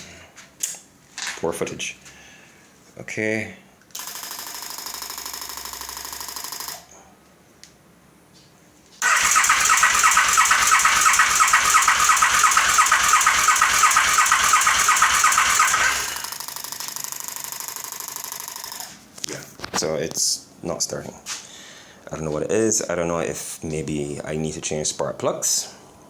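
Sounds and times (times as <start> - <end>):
motorcycle engine cranking: 9.0 - 16.5.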